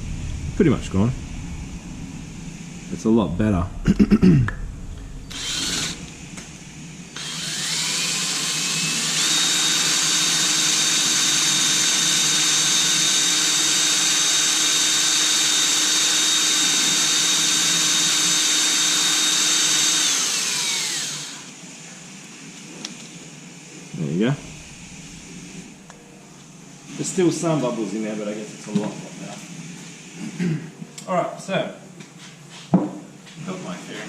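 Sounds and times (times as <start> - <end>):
small power tool motor: 5.3 - 6.1, 7.2 - 21.6.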